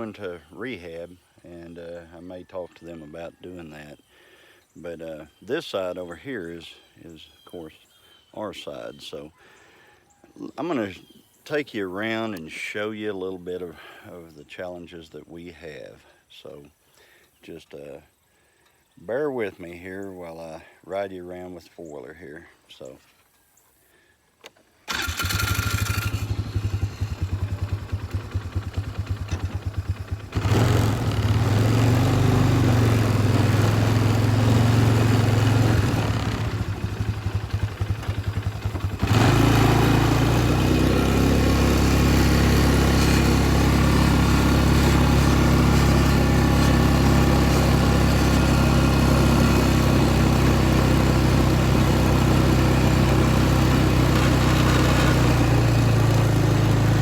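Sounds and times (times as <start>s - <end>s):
atv engine starting and idling: 24.9s - 57.0s.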